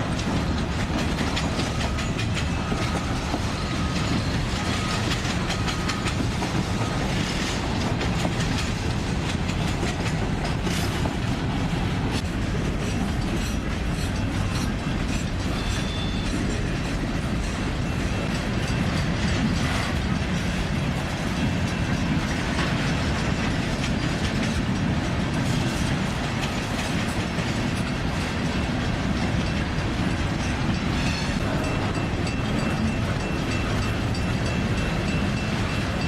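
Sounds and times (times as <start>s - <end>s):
railroad cars rolling past: 0.0s - 36.0s
wheels clicking over rail joints: 0.0s - 36.0s
faint short squeal: 15.5s - 16.4s.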